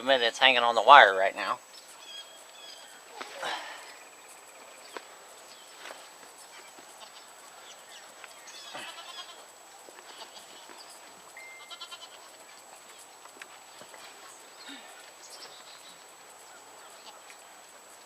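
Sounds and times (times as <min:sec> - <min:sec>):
faint animal calls: 0:06.5 - 0:09.5.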